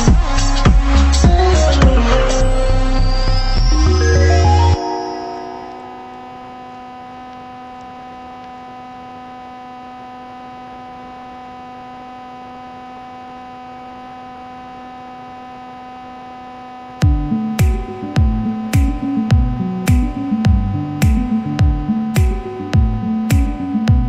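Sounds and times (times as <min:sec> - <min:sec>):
deep kick-drum beat: 0:00.0 - 0:02.2, 0:17.0 - 0:24.0
held synth drone: 0:00.0 - 0:07.0.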